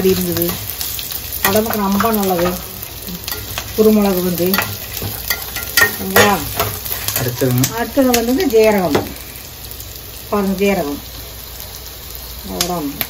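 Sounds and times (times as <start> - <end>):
onions sizzling in oil: 0.0 - 13.0
metal spatula scraping and knocking pan: 4.4 - 7.4.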